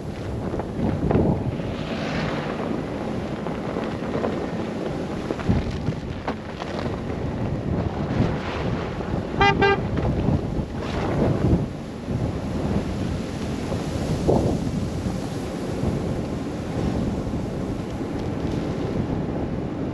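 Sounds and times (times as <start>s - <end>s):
wind buffeting microphone: 0.0s - 19.9s
car driving: 0.5s - 5.4s
car horn toot: 9.4s - 10.0s.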